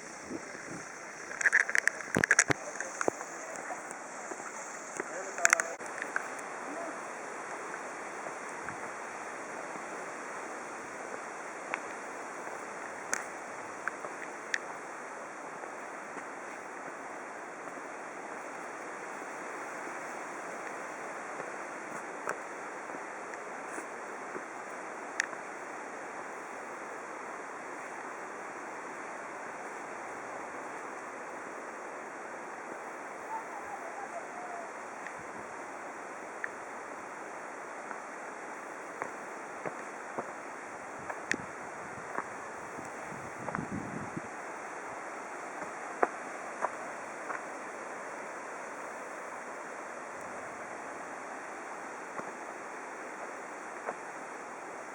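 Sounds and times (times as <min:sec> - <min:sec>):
stream water rushing: 0:00.0 - 0:54.9
faint sharp clicks: 0:01.2 - 0:06.5, 0:25.2 - 0:25.4.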